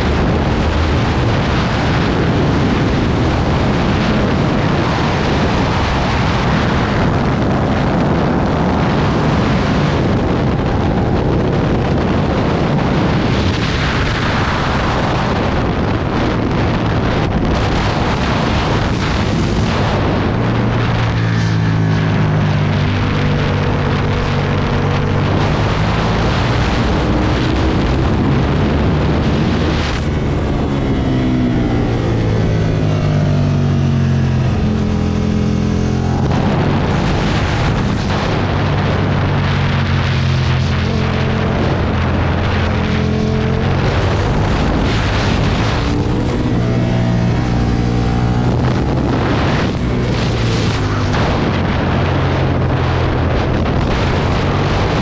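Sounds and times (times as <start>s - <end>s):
motorcycle engine revving at speed: 0.0s - 55.0s
wind rushing over microphone: 0.0s - 55.0s.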